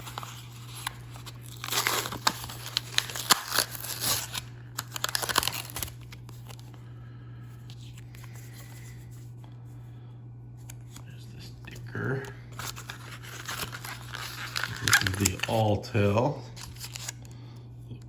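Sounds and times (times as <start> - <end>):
blister pack tearing and crinkling: 0.0 - 6.6, 12.5 - 17.3
low steady hum: 0.0 - 18.0.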